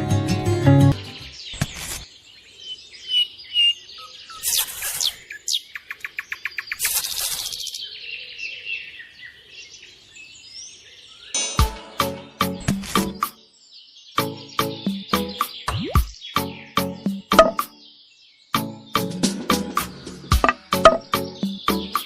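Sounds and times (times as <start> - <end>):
birds chirping and whistling: 2.6 - 9.4, 12.0 - 22.0.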